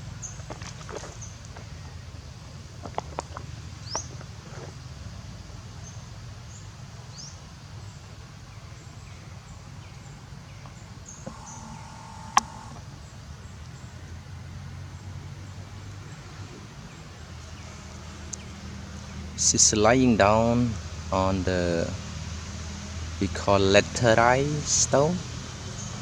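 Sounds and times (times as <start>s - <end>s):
sharp click: 11.2s - 12.8s.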